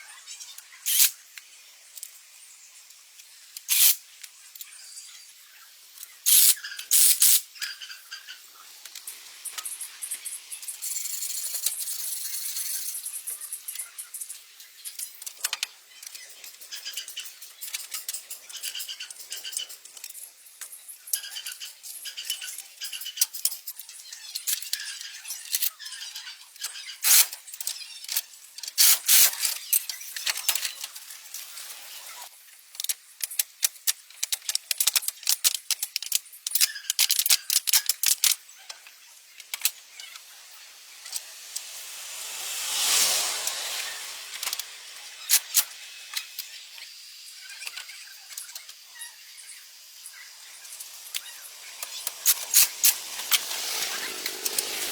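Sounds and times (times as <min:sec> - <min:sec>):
metal parts clicking and rattling: 0:00.9 - 0:01.2, 0:03.5 - 0:04.0, 0:06.0 - 0:07.4, 0:14.8 - 0:31.7, 0:32.6 - 0:40.2, 0:44.3 - 0:46.9, 0:50.7 - 0:54.9.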